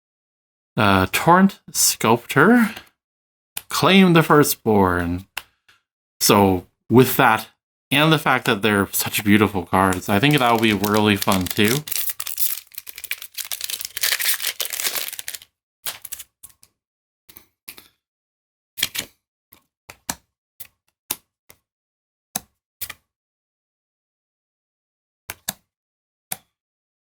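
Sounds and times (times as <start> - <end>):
playing cards clicking: 9.0 - 16.2
foil wrapper crinkling: 9.0 - 16.3.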